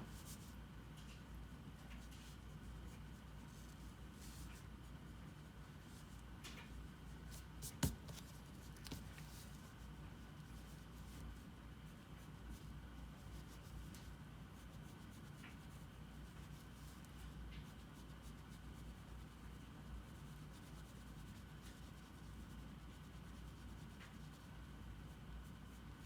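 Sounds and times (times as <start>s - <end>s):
low background noise: 0.0s - 26.0s.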